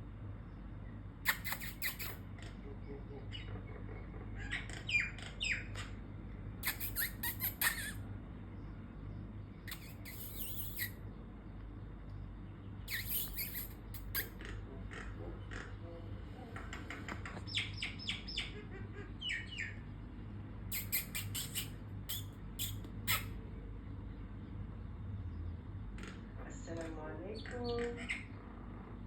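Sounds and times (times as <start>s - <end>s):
bird chirping and squawking: 1.2s - 6.0s, 6.6s - 8.0s, 9.6s - 11.1s, 12.7s - 15.8s, 16.8s - 20.0s, 20.6s - 23.4s, 27.4s - 28.5s.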